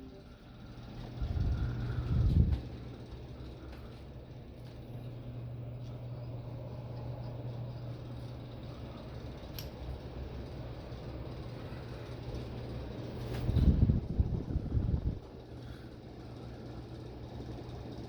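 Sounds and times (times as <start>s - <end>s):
ceiling fans with low motor hum: 0.0s - 18.0s
uneven low rumble: 1.0s - 2.8s.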